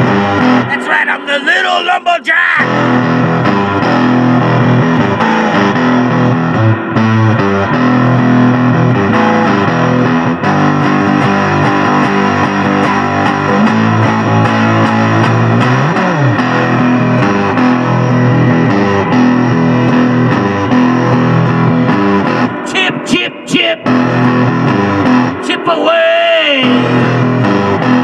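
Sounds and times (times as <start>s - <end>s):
bass line: 0.0s - 28.0s
distorted electric guitar: 0.0s - 28.0s.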